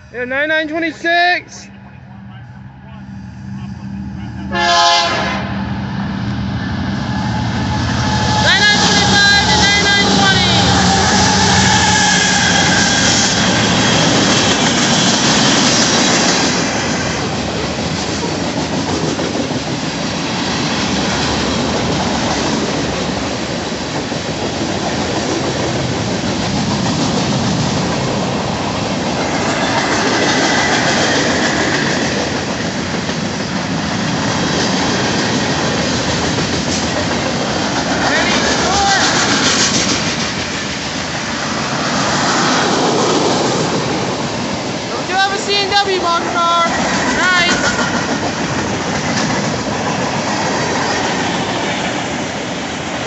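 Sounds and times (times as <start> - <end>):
freight train wheels rumbling: 0.0 - 53.0
high wheel squeal: 7.0 - 14.1.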